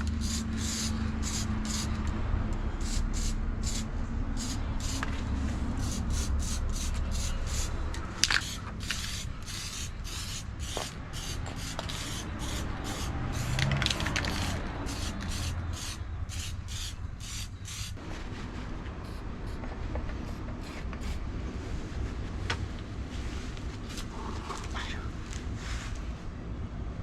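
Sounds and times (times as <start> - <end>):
hand rubbing strokes: 2.8 - 22.4.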